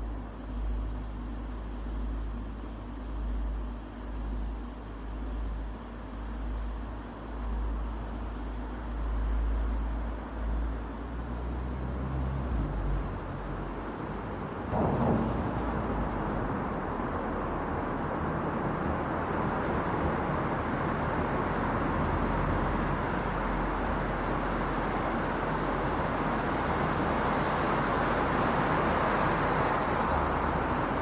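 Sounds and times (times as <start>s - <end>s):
traffic: 0.0s - 31.0s
tyres rushing on road: 11.1s - 31.0s.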